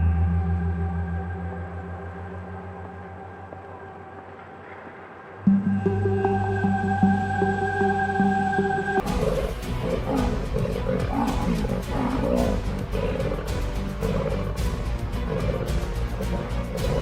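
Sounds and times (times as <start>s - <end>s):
background music: 0.0s - 17.0s
lions growling and roaring: 9.0s - 17.0s.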